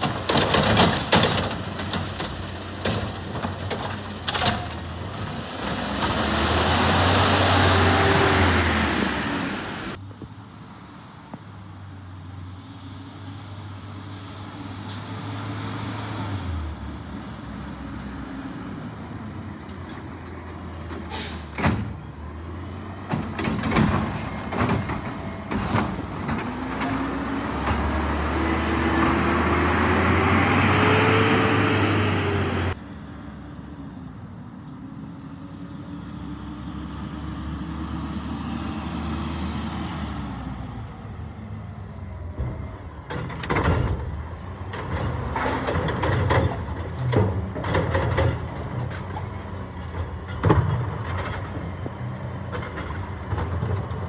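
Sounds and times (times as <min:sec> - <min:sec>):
bangs and clattering knocks: 0:00.0 - 0:06.2, 0:23.0 - 0:28.1, 0:42.4 - 0:51.8.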